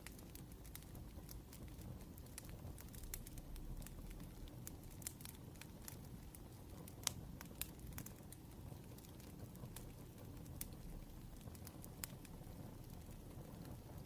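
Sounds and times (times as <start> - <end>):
low steady rumble: 0.0 - 14.0
wood fire crackling: 0.0 - 14.0.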